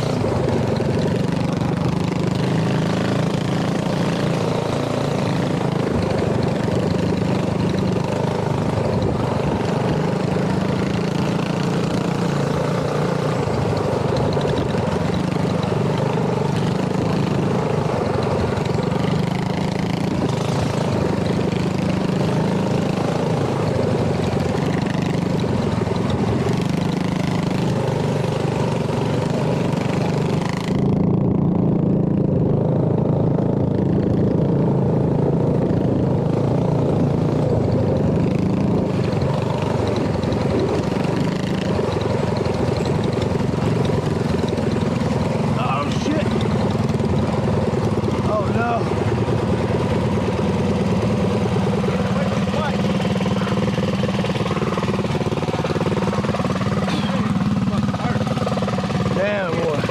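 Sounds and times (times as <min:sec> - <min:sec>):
mini bike engines idling: 0:00.0 - 0:59.9.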